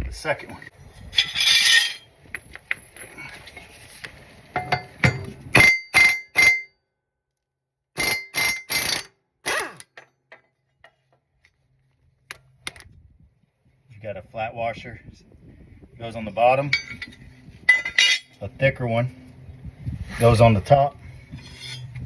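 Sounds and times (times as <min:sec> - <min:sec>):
metallic ring of blade: 0:21.4 - 0:22.0.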